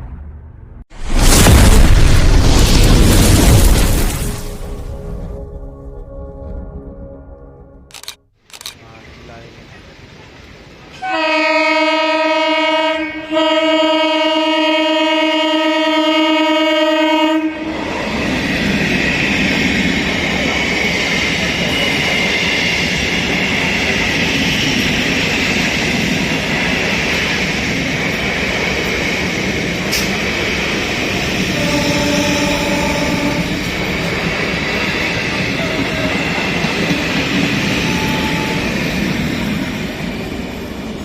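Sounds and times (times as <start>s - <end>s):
train horn: 10.9s - 17.8s, 31.4s - 33.7s, 37.6s - 38.8s
train wheels rumbling on rails: 17.6s - 41.0s.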